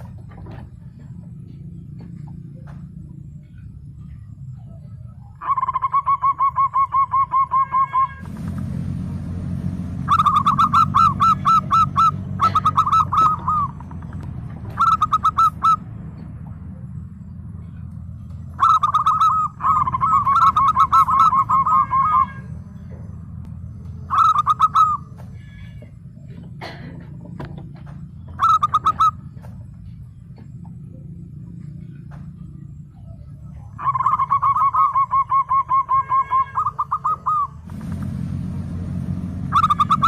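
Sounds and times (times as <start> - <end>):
steady low hum: 0.0 - 40.0
dove cooing: 3.4 - 8.2, 10.0 - 15.9, 17.6 - 23.0, 23.8 - 27.1, 27.7 - 31.2, 31.8 - 37.7.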